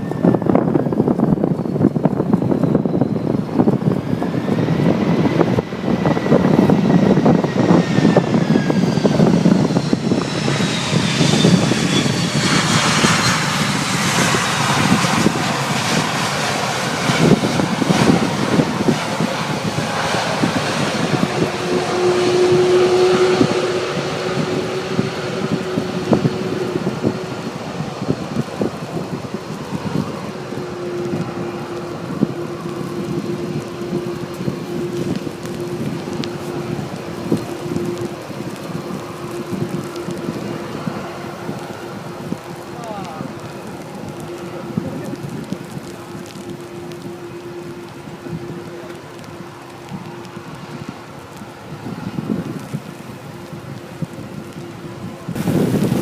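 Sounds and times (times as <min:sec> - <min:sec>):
jet engines whining: 0:00.0 - 0:56.0
wind buffeting microphone: 0:00.0 - 0:56.0.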